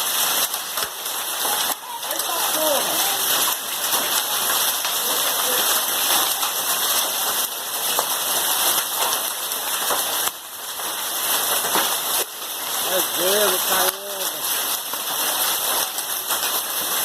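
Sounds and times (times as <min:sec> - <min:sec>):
heavy rain with hail: 0:00.0 - 0:17.0.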